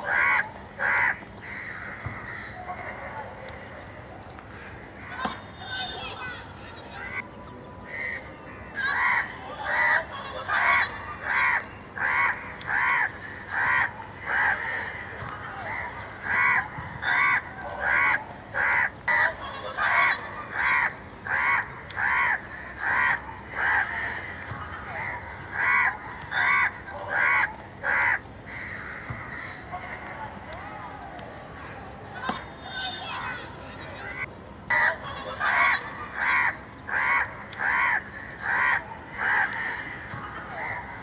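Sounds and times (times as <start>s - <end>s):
crow cawing: 0.0s - 2.9s, 10.6s - 15.1s, 16.2s - 19.2s, 19.8s - 24.5s, 25.1s - 29.7s, 34.0s - 40.1s.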